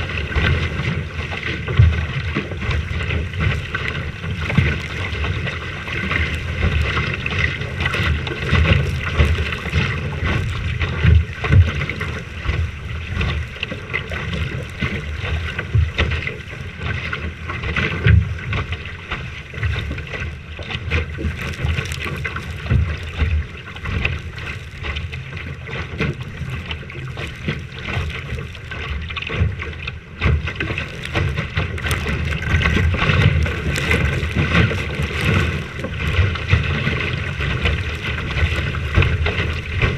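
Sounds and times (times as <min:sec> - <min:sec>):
rushing water: 0:00.0 - 0:39.9
wind buffeting microphone: 0:19.8 - 0:39.9.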